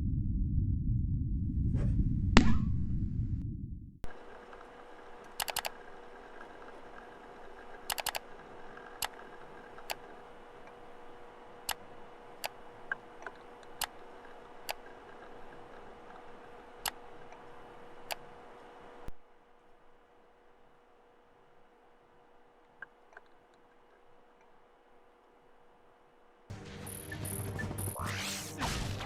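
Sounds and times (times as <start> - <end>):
computer hum: 0.0 - 29.0
keyboard typing: 4.1 - 10.3
mouse clicks: 5.3 - 5.8, 7.9 - 8.2.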